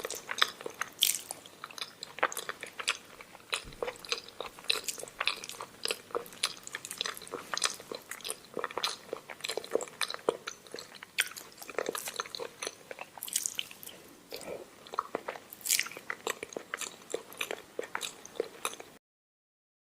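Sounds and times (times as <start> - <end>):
mouth chewing and smacking: 0.0 - 19.0.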